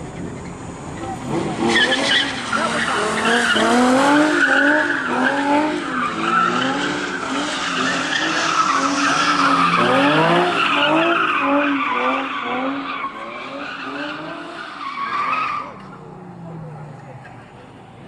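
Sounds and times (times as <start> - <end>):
tyres squealing: 0.1 - 16.1
car engine revving hard: 1.2 - 14.6.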